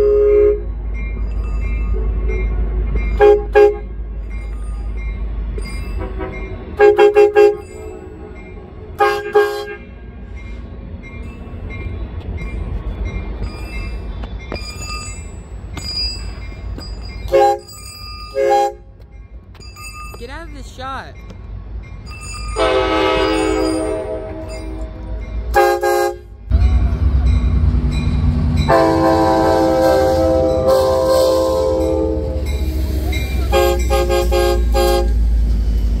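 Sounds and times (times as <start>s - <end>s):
train horn toots: 0.0s - 0.7s, 3.2s - 3.9s, 6.0s - 8.4s, 9.0s - 9.9s, 17.3s - 17.7s, 18.4s - 18.9s, 22.6s - 26.9s, 28.7s - 32.5s, 33.5s - 35.2s
train rumble: 0.0s - 36.0s.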